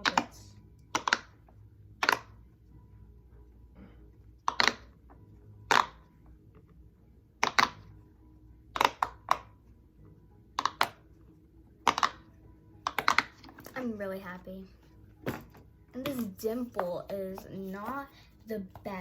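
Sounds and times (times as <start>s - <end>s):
fidget toys clicking and tapping: 0.0s - 2.4s, 4.4s - 6.1s, 7.4s - 7.9s, 8.7s - 9.6s, 10.6s - 11.1s, 11.8s - 13.8s.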